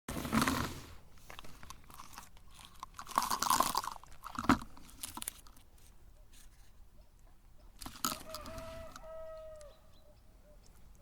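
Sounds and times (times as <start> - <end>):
cookies crunching in grinder: 1.3 - 5.4.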